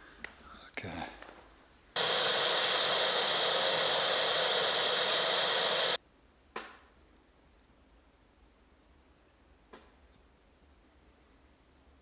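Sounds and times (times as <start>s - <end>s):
vacuum cleaner running: 2.0s - 6.0s.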